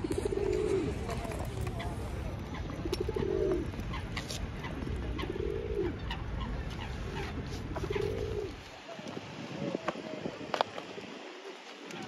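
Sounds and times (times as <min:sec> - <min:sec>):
pigeon cooing: 0:00.0 - 0:06.2, 0:07.1 - 0:08.6.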